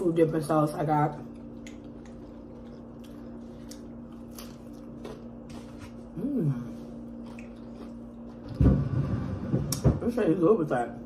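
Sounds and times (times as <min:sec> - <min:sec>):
crunchy food chewing: 0:01.1 - 0:08.6
person humming mmm: 0:06.1 - 0:07.0.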